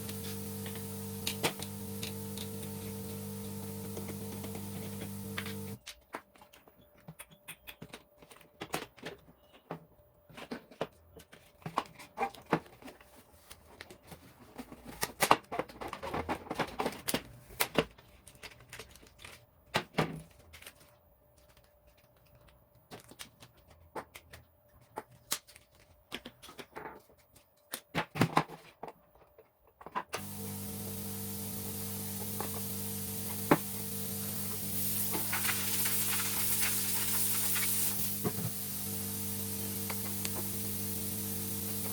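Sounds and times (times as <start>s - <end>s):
electrical hum with hiss: 0.0s - 5.8s, 30.2s - 41.9s
clicks and knocks of parts handled: 14.6s - 30.2s.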